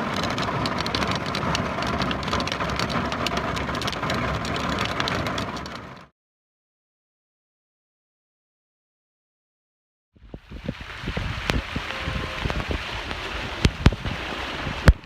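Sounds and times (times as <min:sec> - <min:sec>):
hail clattering: 0:00.0 - 0:06.1.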